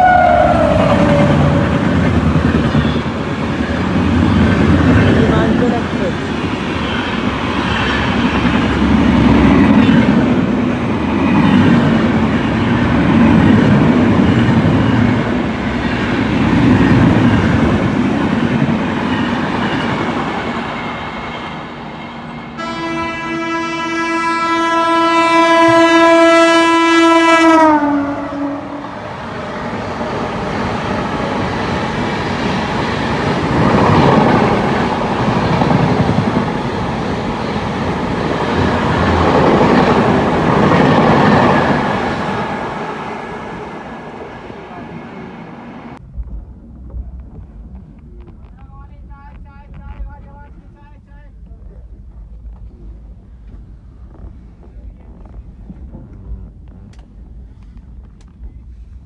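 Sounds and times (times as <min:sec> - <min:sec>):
locomotive horn long blast: 0:00.0 - 0:03.2, 0:22.6 - 0:29.0
train wheels on rails: 0:00.0 - 0:22.6, 0:29.0 - 0:59.0.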